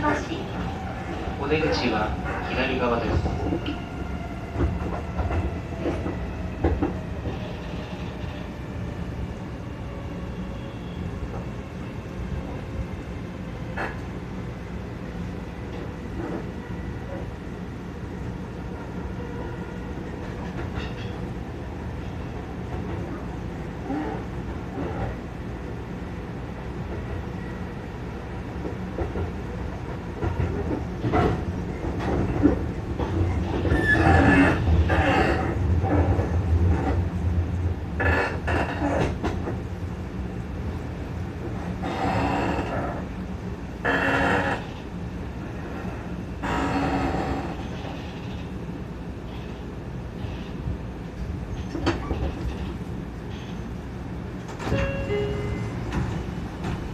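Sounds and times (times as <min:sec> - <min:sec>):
train running rumble: 0:00.0 - 0:56.9
rail-joint clicks: 0:20.2 - 0:21.3, 0:38.0 - 0:39.7, 0:51.5 - 0:53.8, 0:54.4 - 0:56.9.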